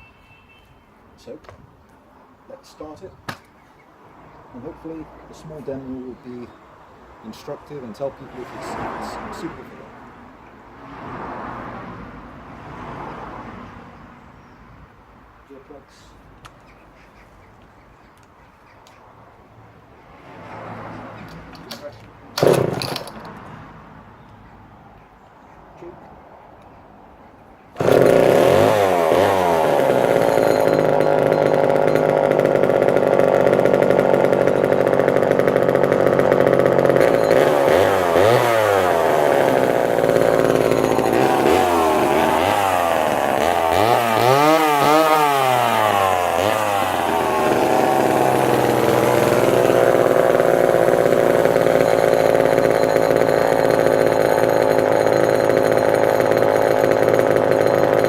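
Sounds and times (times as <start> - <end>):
chainsaw engine revving: 22.4 - 23.3, 27.8 - 58.0.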